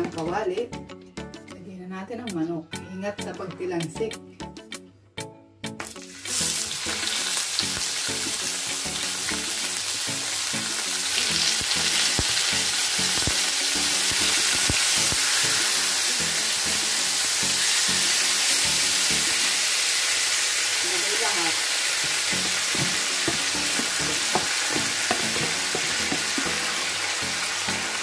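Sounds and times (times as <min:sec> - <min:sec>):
chicken sizzling in a pan: 0:05.9 - 0:28.0
knocks against a pan: 0:22.4 - 0:26.6.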